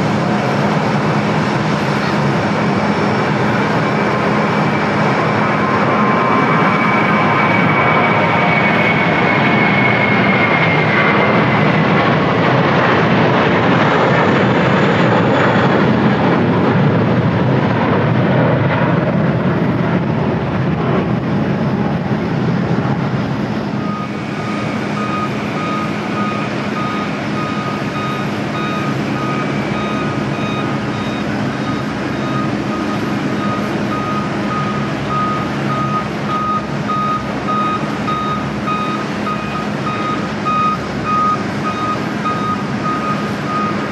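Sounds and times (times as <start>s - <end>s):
jet airliner engines roaring: 0.0s - 43.9s
low engine hum: 0.0s - 43.9s
reversing beeper: 3.6s - 11.7s, 23.7s - 43.9s.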